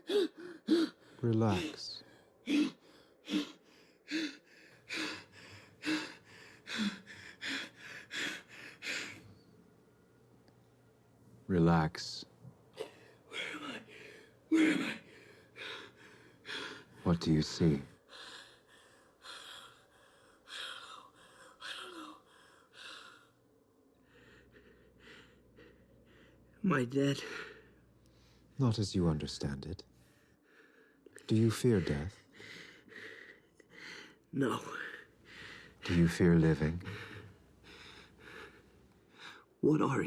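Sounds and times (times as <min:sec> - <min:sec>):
man breathing heavily: 0:00.0 - 0:09.4, 0:30.1 - 0:39.5.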